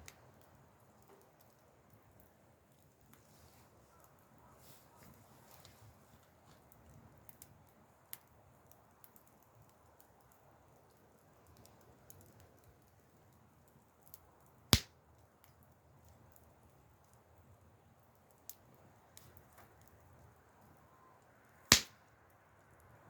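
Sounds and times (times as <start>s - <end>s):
campfire crackling: 0.0s - 23.0s
loud fire pop: 21.7s - 22.0s.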